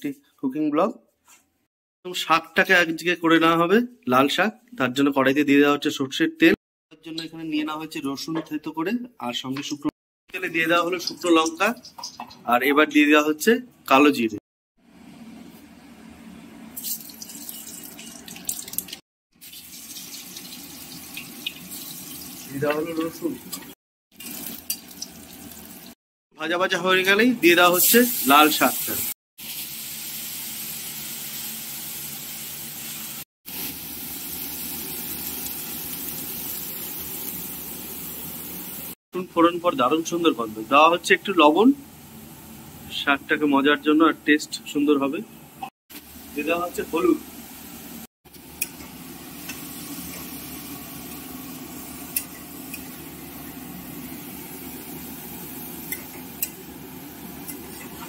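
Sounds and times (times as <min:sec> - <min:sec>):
greens sizzling in oil: 0:16.8 - 0:25.9, 0:27.6 - 0:39.0, 0:45.9 - 0:58.0.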